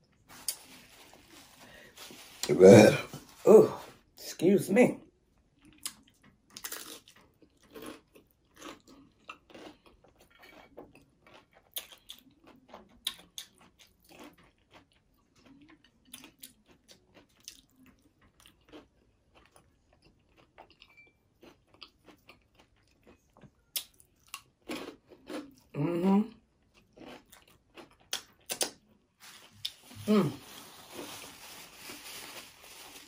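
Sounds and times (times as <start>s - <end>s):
chewing crispy food: 5.0s - 33.0s.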